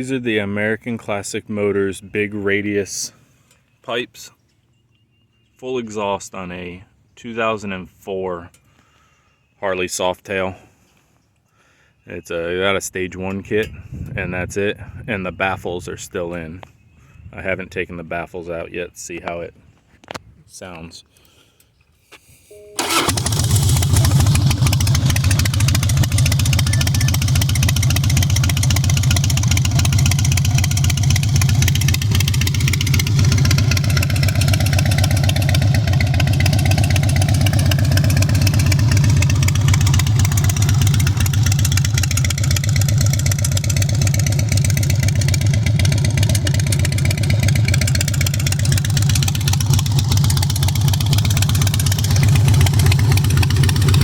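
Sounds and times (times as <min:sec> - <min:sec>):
motorcycle engine idling: 0:22.8 - 0:54.0.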